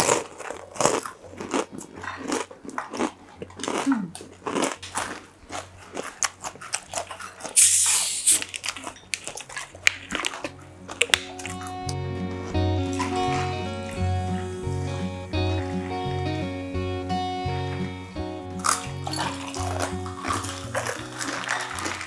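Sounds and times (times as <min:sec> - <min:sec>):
crunchy chewing and biting: 0:00.0 - 0:11.9, 0:18.6 - 0:22.0
short hiss: 0:07.6 - 0:08.5.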